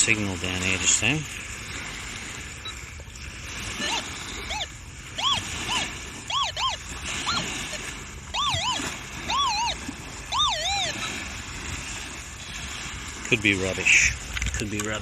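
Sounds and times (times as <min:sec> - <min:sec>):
metal detector chirps: 0:03.8 - 0:07.4, 0:08.3 - 0:11.1.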